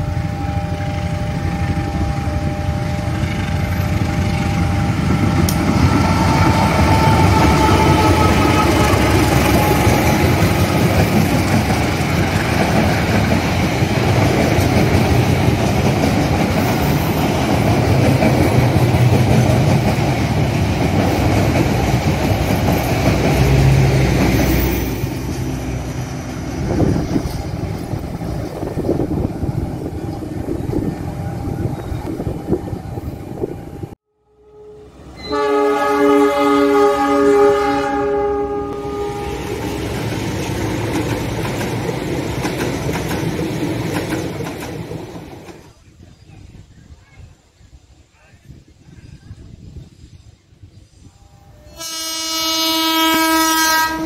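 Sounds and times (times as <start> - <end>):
passenger train passing: 0.0 - 46.8, 49.4 - 54.0
locomotive air horn blasts: 4.6 - 10.4, 34.2 - 39.8, 51.1 - 54.0.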